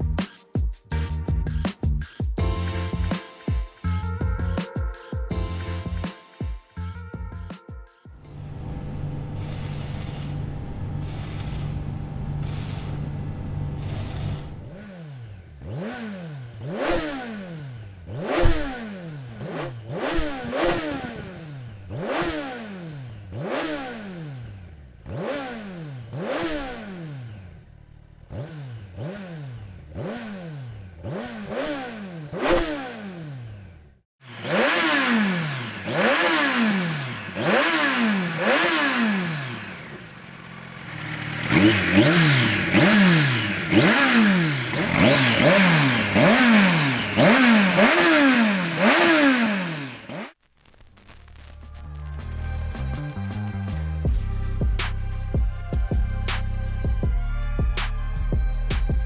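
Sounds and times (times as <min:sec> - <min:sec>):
motorcycle engine revving: 0:08.3 - 0:50.4.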